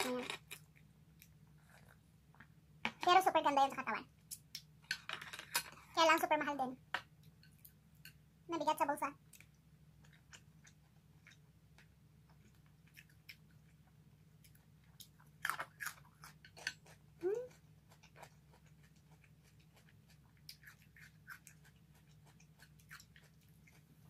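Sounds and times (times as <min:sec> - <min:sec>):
person humming: 0:17.2 - 0:17.5.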